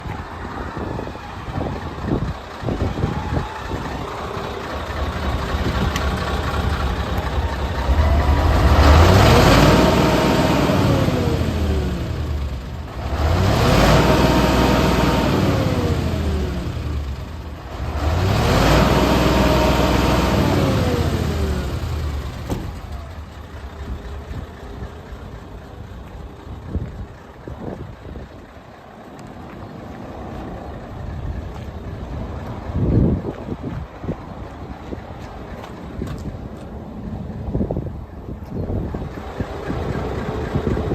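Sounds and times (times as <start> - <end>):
diesel truck engine idling and revving: 0.0 - 40.9.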